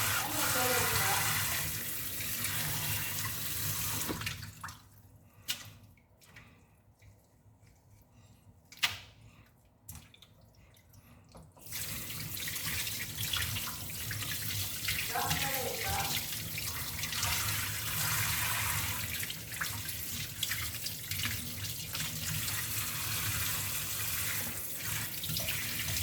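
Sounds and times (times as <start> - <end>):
tap water running into sink: 0.0 - 4.8, 11.4 - 26.0.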